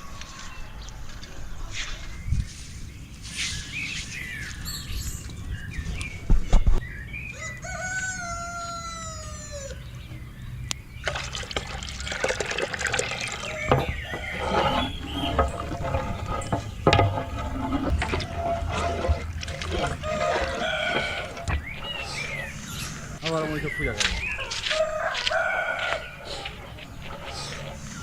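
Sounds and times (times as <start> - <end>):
rooster crowing: 7.3 - 9.9, 19.9 - 21.6, 24.6 - 26.6
dull knocks: 13.6 - 21.8.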